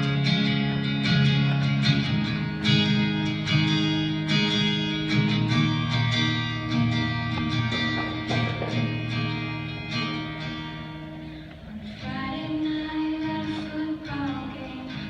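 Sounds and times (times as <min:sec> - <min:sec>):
acoustic guitar strumming chords: 0:00.0 - 0:15.0
girl singing: 0:11.8 - 0:15.0.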